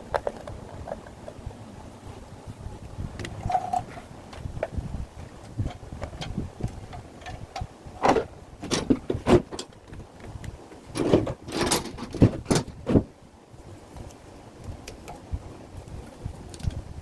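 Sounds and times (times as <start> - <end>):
hard objects knocking and rattling: 0.0 - 1.4, 5.4 - 13.2.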